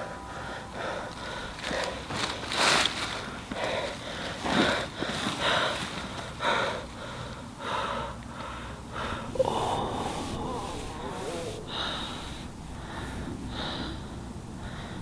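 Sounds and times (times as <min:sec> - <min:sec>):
heavy breathing: 0:03.5 - 0:15.0.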